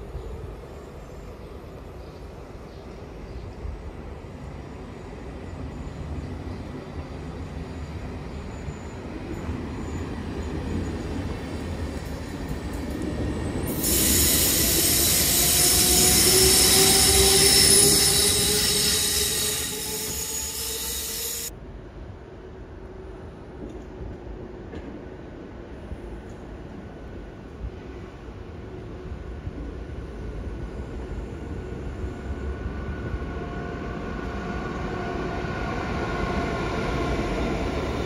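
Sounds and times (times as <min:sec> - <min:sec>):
train wheels rumbling on rails: 0:00.0 - 0:21.5, 0:23.1 - 0:38.0
high-pitched metallic squeal: 0:13.7 - 0:21.5.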